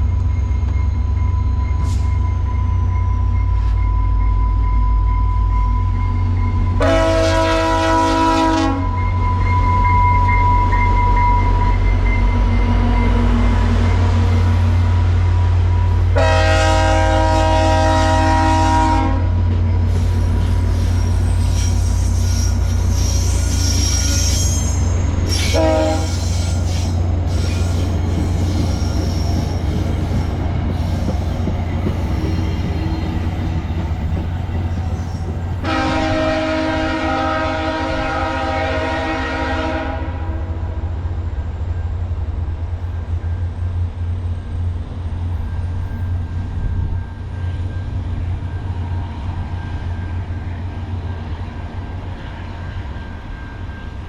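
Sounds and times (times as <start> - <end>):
train rumbling on rails: 0.0 - 54.0
locomotive horn blasts: 6.8 - 9.0, 16.1 - 19.4, 25.4 - 26.7, 35.6 - 40.7.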